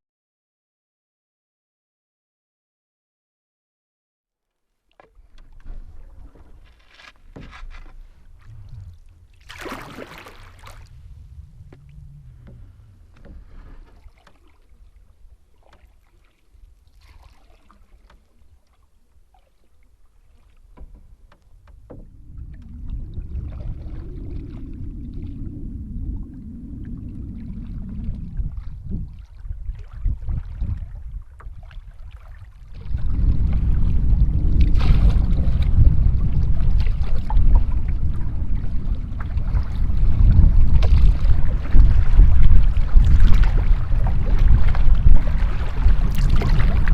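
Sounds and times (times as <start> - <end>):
paddle strokes with water splashing: 4.8 - 46.9
wind rumble on microphone: 5.0 - 15.9, 20.7 - 46.9.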